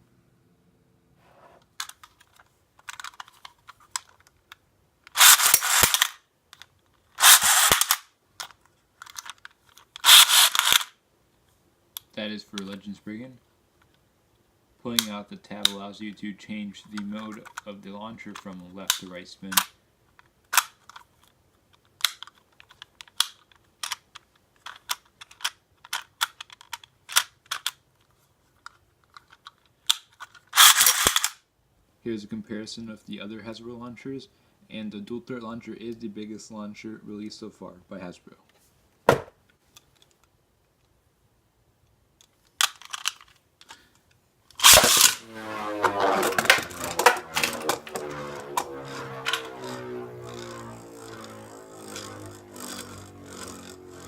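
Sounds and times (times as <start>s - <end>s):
small plastic clicks: 1.8s - 10.9s, 18.9s - 31.4s, 41.8s - 45.2s
loud rasping rattles: 5.2s - 6.1s, 10.0s - 10.8s, 50.3s - 54.0s.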